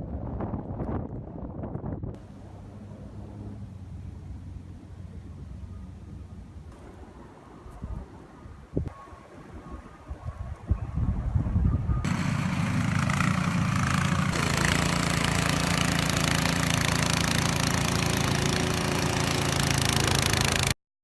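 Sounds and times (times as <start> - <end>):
vehicle engine running: 12.0 - 20.8.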